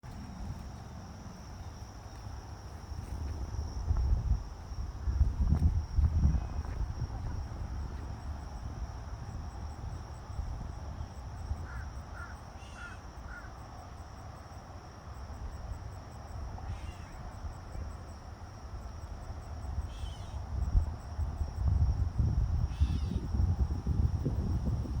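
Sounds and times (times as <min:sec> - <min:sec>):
insect-like chirring: 0:19.9 - 0:20.4, 0:22.6 - 0:23.7.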